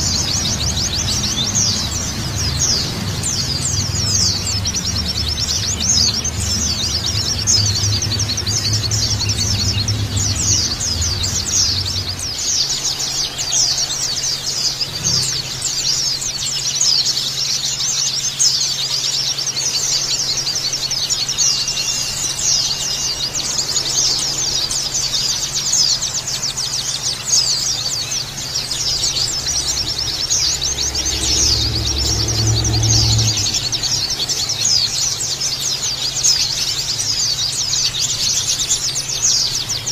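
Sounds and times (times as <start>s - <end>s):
low rumble: 0.0s - 12.5s
flock of birds chirping: 0.0s - 39.9s.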